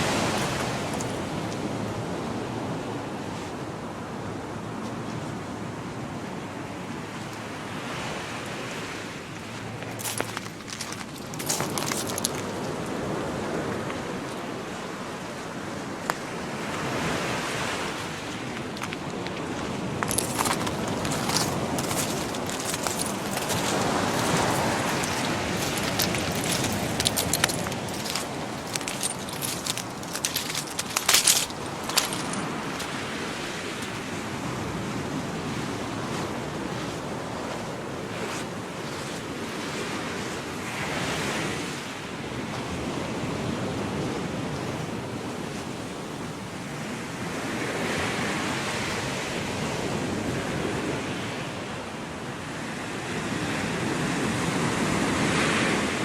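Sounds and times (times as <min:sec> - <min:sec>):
surf washing onto beach: 0:07.3 - 0:29.1
sharp crackles: 0:20.1 - 0:32.9.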